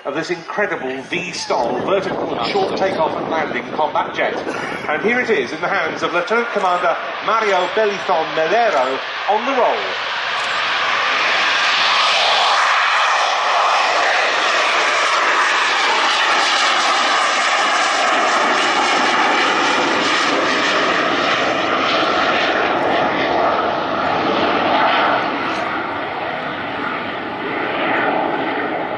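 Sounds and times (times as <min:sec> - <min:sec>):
jet engine at full power: 0:00.0 - 0:28.9.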